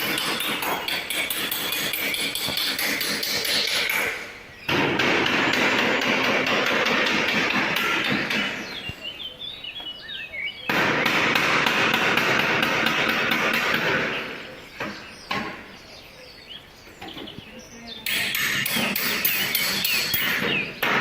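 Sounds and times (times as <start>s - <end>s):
bird chirping: 0.0s - 5.8s, 7.8s - 11.3s, 12.6s - 21.0s
rapid loud knocking: 0.0s - 8.6s, 10.8s - 14.1s.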